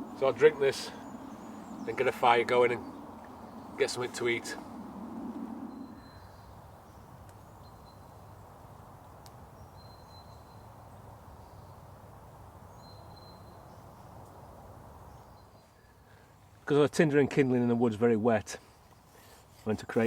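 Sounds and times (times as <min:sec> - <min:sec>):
low outdoor hiss: 0:00.0 - 0:20.0
faint click: 0:09.2 - 0:09.4.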